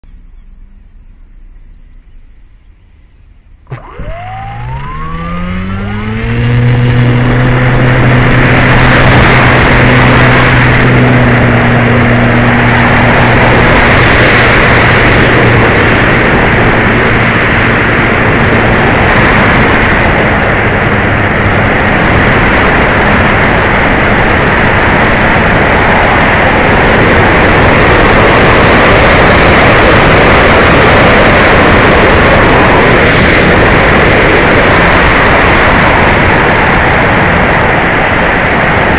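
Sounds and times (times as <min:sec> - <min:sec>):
model plane electric motor whine: 0:03.6 - 0:22.4
rushing air noise: 0:03.6 - 0:38.9.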